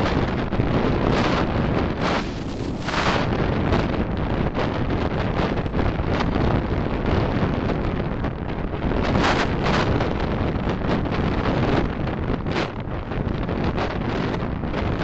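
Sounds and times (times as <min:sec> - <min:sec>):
road and traffic rumble: 0:00.0 - 0:04.9
wind buffeting microphone: 0:00.0 - 0:15.0.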